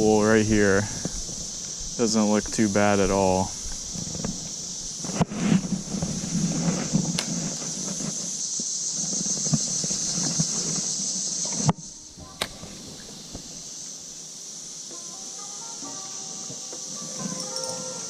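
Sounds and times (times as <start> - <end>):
high-pitched insect drone: 0.0 - 18.0
creek rushing: 9.1 - 18.0
faint music: 11.8 - 18.0.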